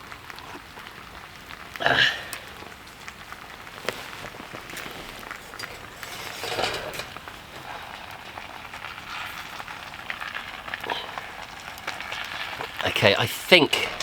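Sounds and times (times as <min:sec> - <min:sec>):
frying pan sizzling: 0:00.0 - 0:14.0
wood fire crackling: 0:00.0 - 0:14.0
scrape or rustle: 0:03.8 - 0:07.7.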